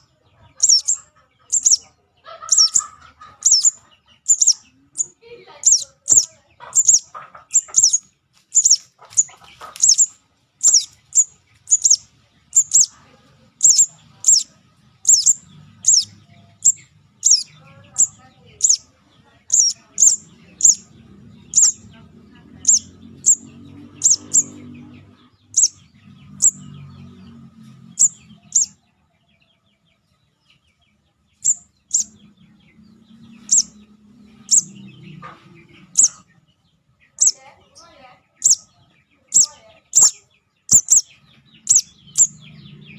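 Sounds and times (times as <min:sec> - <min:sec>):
young bird begging chirps: 0:00.0 - 0:13.0, 0:13.6 - 0:22.0, 0:22.6 - 0:26.8, 0:28.0 - 0:28.8, 0:31.4 - 0:32.2, 0:33.4 - 0:33.8, 0:34.4 - 0:36.2, 0:37.1 - 0:37.4, 0:38.4 - 0:42.5.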